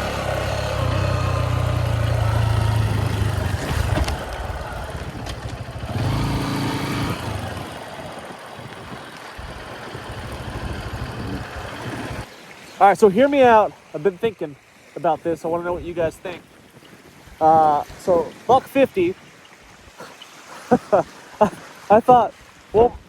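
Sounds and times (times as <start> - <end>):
motorcycle engine running: 0.0 - 8.3, 9.4 - 12.3.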